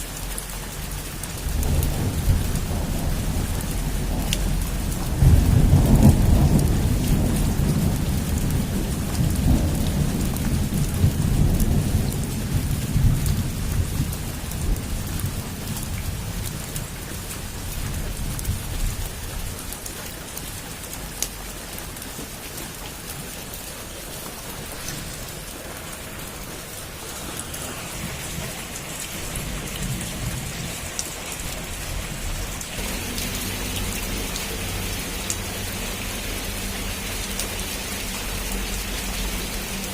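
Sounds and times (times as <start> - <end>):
heavy rain on a roof: 0.0 - 39.9
low roll of thunder: 1.3 - 16.7, 24.3 - 35.7.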